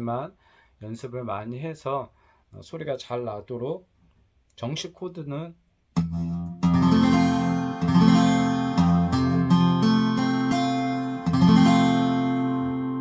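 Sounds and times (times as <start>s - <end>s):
acoustic guitar strums: 6.0s - 13.0s.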